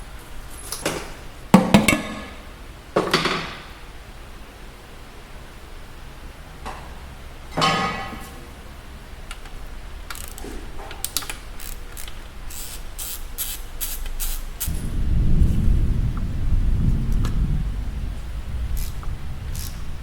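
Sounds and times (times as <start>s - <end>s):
low rumble: 14.6s - 20.0s.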